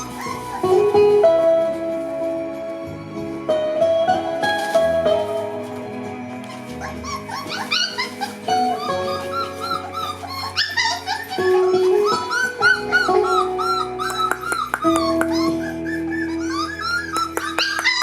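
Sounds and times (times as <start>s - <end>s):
puppies whimpering and yipping: 0.0s - 1.5s, 6.3s - 18.0s
background music with held notes: 0.0s - 18.0s.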